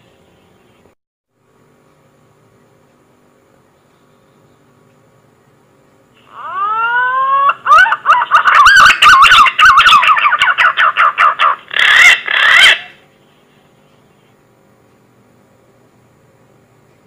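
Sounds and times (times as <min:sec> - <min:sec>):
faint electrical hum: 0:00.0 - 0:17.0
whistled bird call: 0:06.2 - 0:11.0.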